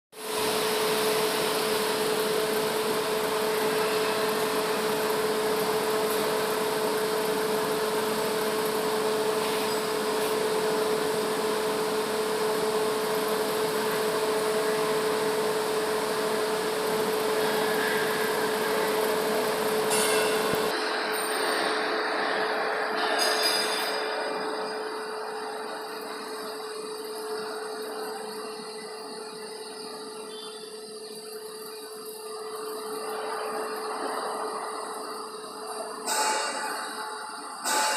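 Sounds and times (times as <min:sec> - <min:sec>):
welding arc hissing: 0:00.2 - 0:20.8.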